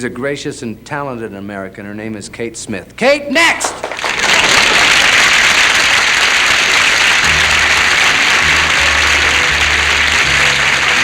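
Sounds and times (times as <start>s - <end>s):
audience applauding: 3.5s - 11.0s
orchestra playing low bass notes: 7.2s - 11.0s.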